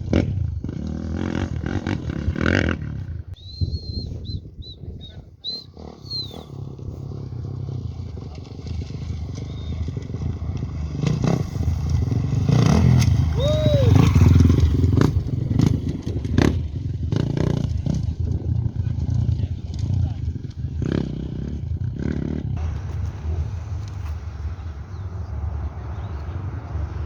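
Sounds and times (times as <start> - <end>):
off-road motorcycle passing: 0.0 - 27.0
short high whistles: 3.4 - 6.6, 13.4 - 14.1.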